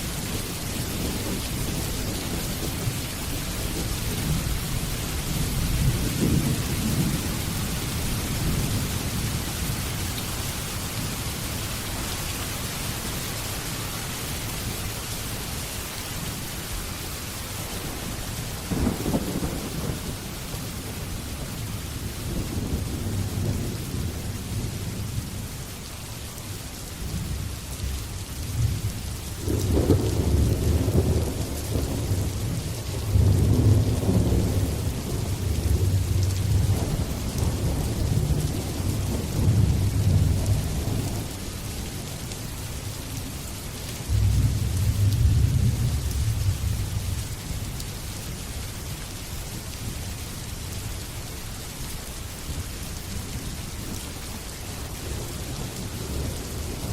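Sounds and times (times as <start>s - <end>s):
steady rain: 0.0s - 56.9s
rolling thunder: 3.8s - 9.3s, 18.0s - 25.4s, 28.5s - 41.4s, 44.1s - 47.2s.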